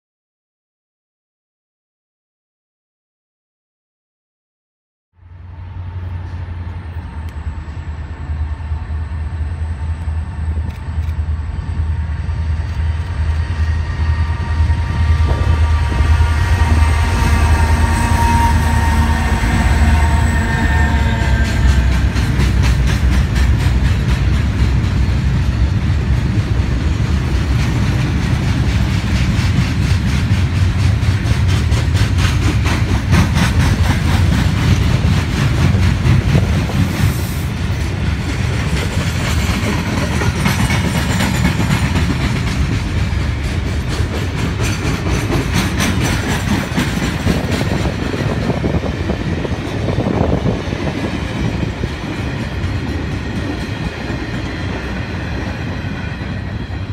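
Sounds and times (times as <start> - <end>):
freight train rumbling past: 5.2 - 56.9
steel wheels clattering on rail joints: 15.2 - 56.9.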